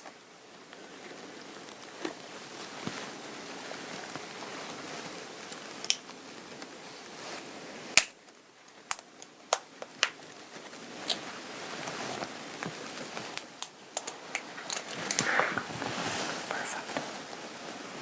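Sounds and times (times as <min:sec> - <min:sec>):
cloth rustling: 0:14.0 - 0:18.0.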